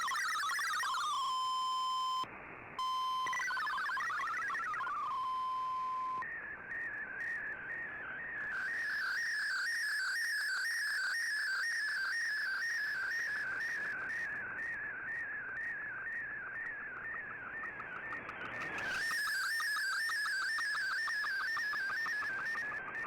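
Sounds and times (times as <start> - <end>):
warbling radio data tone: 0.0 - 2.2, 2.8 - 6.2, 16.9 - 23.0.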